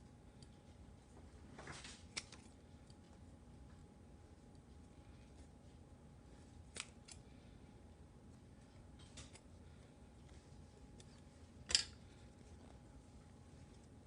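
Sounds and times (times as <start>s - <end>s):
scissors snipping foam: 6.7s - 7.2s.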